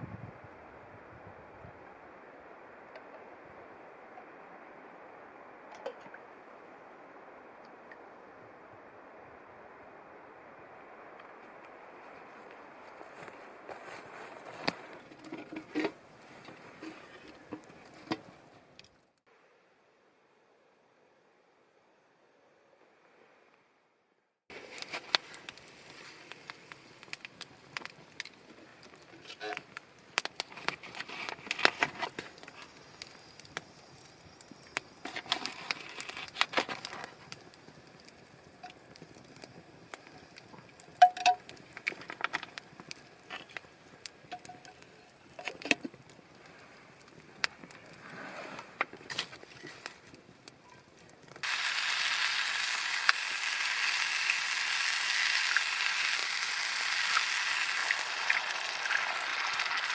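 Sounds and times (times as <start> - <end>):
loud steady sizzle: 0.0 - 19.3, 24.5 - 59.9
campfire crackling and popping: 11.0 - 19.3, 24.5 - 59.9.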